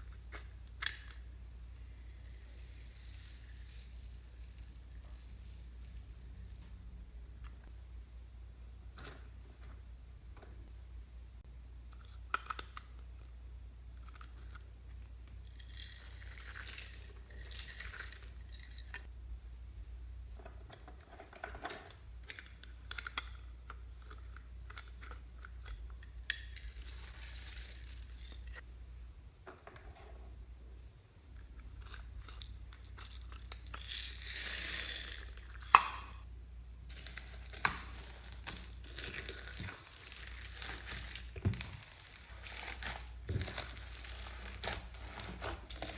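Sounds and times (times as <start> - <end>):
slime crackling and crinkling: 36.9 - 45.9.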